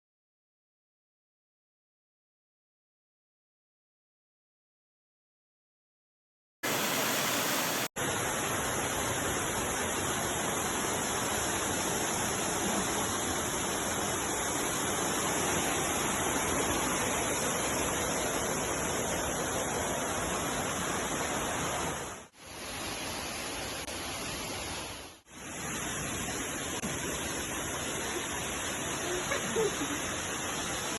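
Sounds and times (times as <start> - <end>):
waterfall rushing: 6.6 - 30.9.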